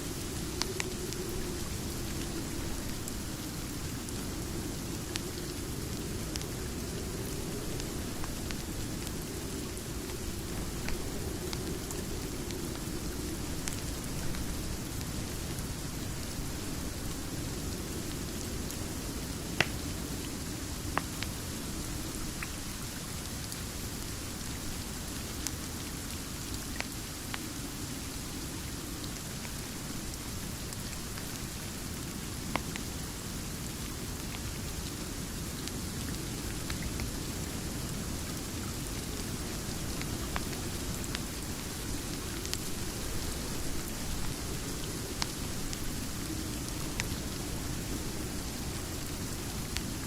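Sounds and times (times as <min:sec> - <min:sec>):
crackling wood fire: 0:00.0 - 0:50.0
steady rain falling: 0:00.0 - 0:50.0
fireplace crackles: 0:34.0 - 0:50.0.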